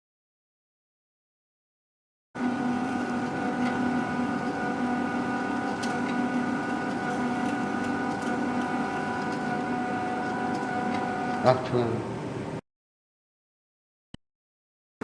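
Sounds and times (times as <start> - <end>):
wire feeder motor humming: 2.4 - 11.6.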